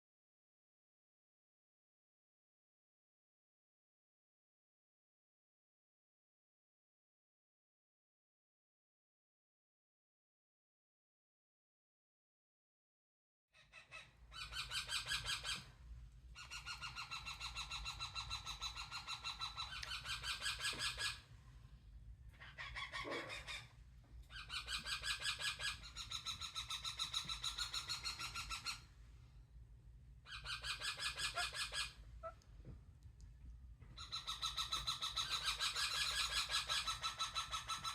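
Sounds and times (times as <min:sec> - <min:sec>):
parrot calling: 0:13.6 - 0:15.7, 0:16.4 - 0:21.3, 0:22.3 - 0:23.7, 0:24.3 - 0:28.9, 0:30.2 - 0:32.4, 0:34.0 - 0:37.9.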